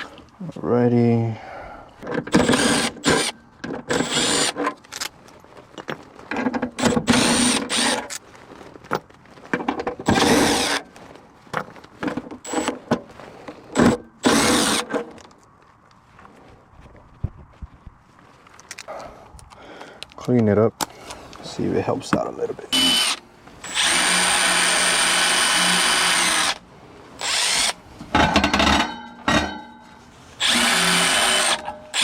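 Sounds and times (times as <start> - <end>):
cordless drill bursts: 2.3 - 4.6, 6.8 - 8.1, 10.1 - 10.8, 13.8 - 14.9, 22.7 - 26.6, 27.2 - 27.8, 30.4 - 32.0.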